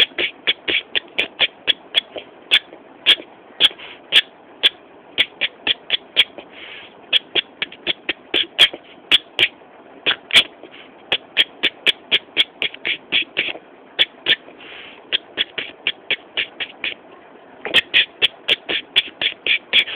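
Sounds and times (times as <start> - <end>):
short hisses: 3.6 - 4.2, 6.4 - 7.0, 14.5 - 15.2.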